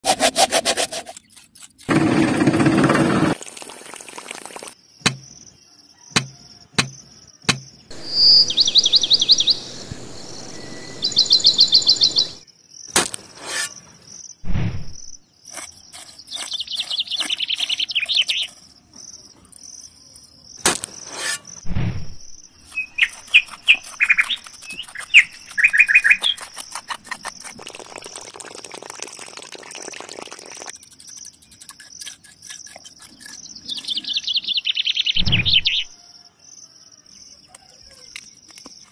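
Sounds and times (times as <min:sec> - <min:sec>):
small birds chirping: 0:04.8 - 0:12.9, 0:15.2 - 0:20.6, 0:22.4 - 0:27.5, 0:30.8 - 0:38.9
high insect buzz: 0:07.9 - 0:12.4
knife scraping in pot of gravel: 0:13.4 - 0:13.8, 0:15.5 - 0:18.8, 0:21.0 - 0:21.6, 0:22.6 - 0:27.9, 0:30.7 - 0:34.1.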